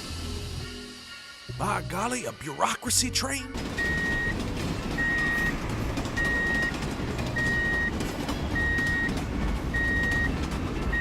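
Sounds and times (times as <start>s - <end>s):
electronic warning beeps: 3.8s - 4.4s, 5.0s - 5.5s, 6.2s - 6.8s, 7.4s - 7.9s, 8.6s - 9.2s, 9.8s - 10.3s.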